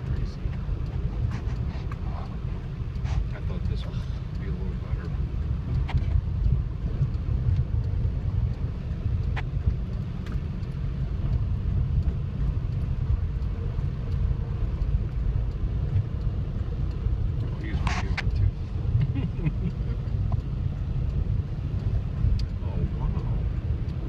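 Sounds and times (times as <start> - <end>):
gusty wind buffeting microphone: 0.0 - 24.0
faint clicks: 0.1 - 24.0.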